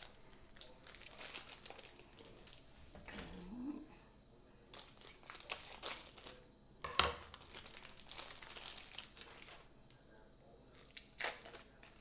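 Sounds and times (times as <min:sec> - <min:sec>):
plastic packaging crinkling: 0:00.0 - 0:02.6, 0:04.7 - 0:06.4, 0:07.1 - 0:10.0, 0:10.8 - 0:12.0.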